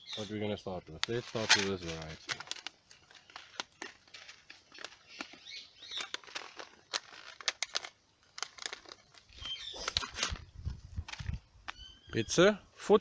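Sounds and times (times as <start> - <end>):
seed packet rustling: 0.0 - 11.4
light clicks of seeds: 0.1 - 11.8
faint bird chirps: 9.3 - 10.0, 11.7 - 12.5.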